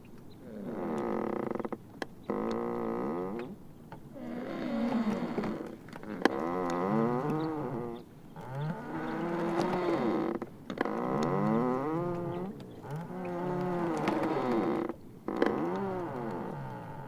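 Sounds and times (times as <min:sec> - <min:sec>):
ice floes squealing and moaning: 0:04.2 - 0:17.0.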